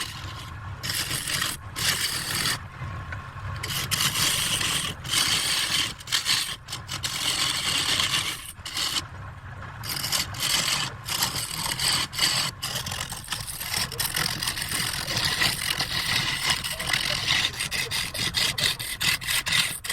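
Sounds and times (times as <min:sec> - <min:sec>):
turning tool scraping wood: 0:00.0 - 0:19.9
wood lathe humming: 0:00.0 - 0:19.9.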